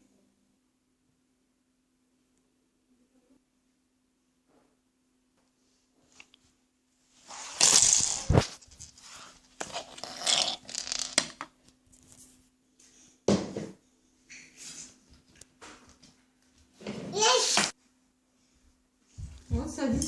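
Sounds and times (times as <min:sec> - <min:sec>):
plastic bricks rattling and clicking: 0:09.6 - 0:11.5.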